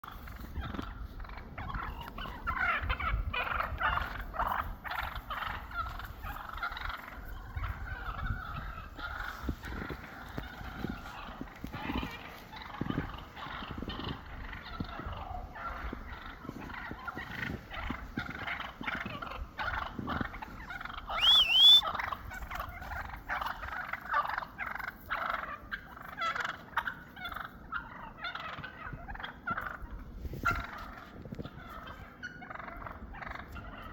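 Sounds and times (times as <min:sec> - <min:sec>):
turkeys gobbling: 0:00.0 - 0:33.9
sharp high turkey call: 0:21.1 - 0:22.1.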